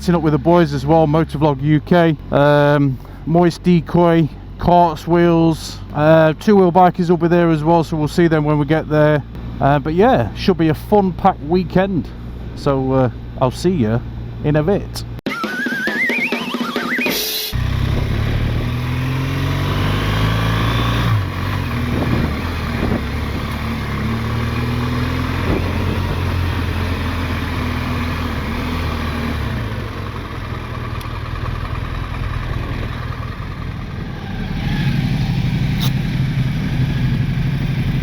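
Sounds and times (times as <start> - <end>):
motorcycle engine accelerating: 17.5 - 38.0.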